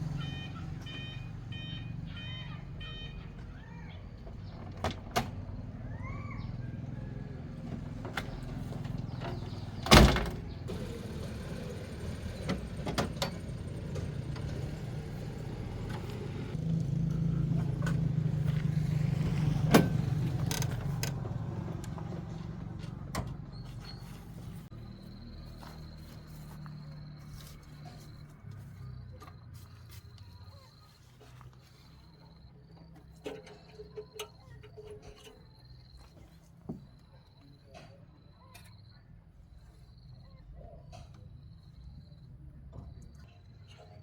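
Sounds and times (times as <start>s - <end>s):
car engine running: 7.6s - 27.8s
knocks and clanks: 7.7s - 16.6s.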